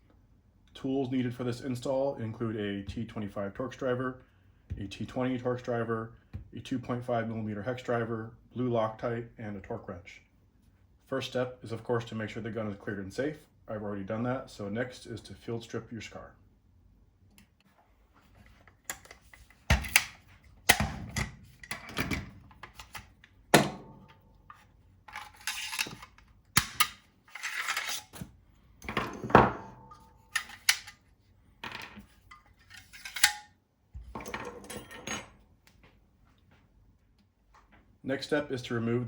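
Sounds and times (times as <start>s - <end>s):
gun metal parts clicking: 18.8s - 23.4s, 25.1s - 28.2s, 29.9s - 31.1s, 32.1s - 33.5s
metal parts scraping and sliding: 25.1s - 26.2s, 27.2s - 28.2s, 32.0s - 33.4s.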